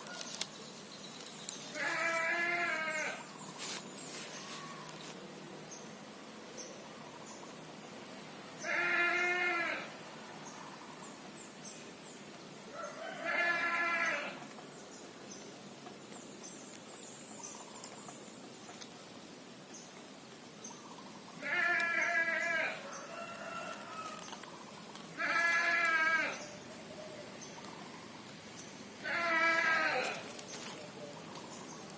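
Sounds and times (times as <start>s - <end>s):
animal bleat-like cries: 1.8s - 3.2s, 8.6s - 9.9s, 13.2s - 14.4s, 21.4s - 22.8s, 25.1s - 26.5s, 29.0s - 30.3s.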